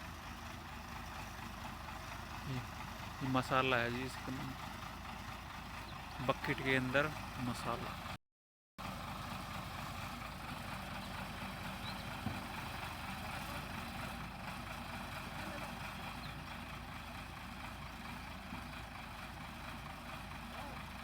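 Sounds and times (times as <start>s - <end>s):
excavator diesel engine running: 0.0s - 8.2s, 8.8s - 21.0s.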